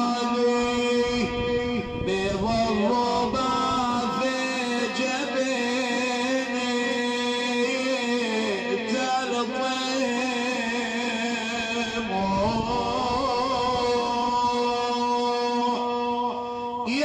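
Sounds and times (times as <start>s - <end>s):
man chanting: 0.0s - 17.0s
steady held drone: 0.0s - 17.0s.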